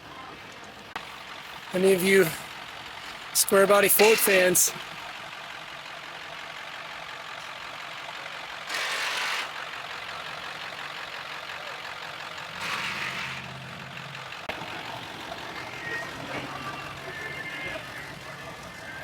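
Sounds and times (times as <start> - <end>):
low engine hum: 0.0 - 19.0
vehicle engine running: 0.0 - 19.0.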